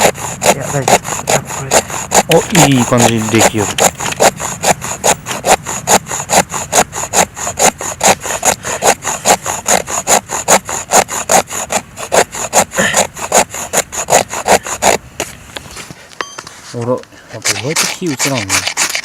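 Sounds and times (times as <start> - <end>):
rasping scrape on wood: 0.0 - 16.0, 16.7 - 19.0.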